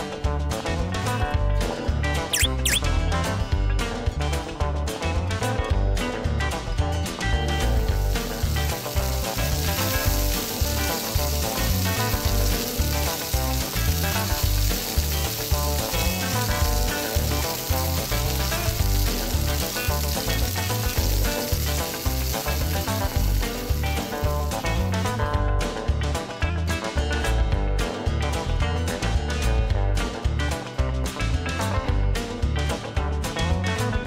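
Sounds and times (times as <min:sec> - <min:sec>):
deep-frying sizzle sound effect: 0:00.9 - 0:03.2, 0:06.8 - 0:30.6.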